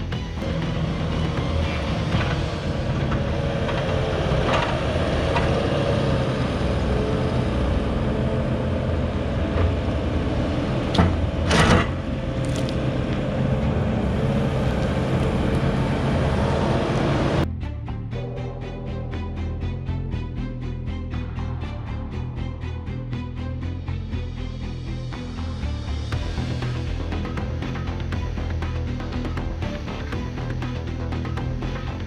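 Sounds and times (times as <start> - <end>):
diesel engine running: 0.0 - 17.5
loud clunk: 10.9 - 12.0.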